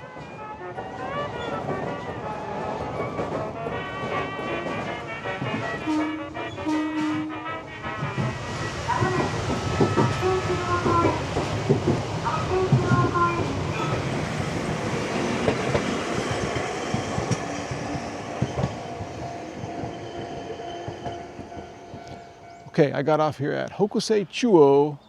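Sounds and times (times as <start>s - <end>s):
electric train running: 0.0s - 22.6s
wheels clacking over rail joints: 0.1s - 22.8s.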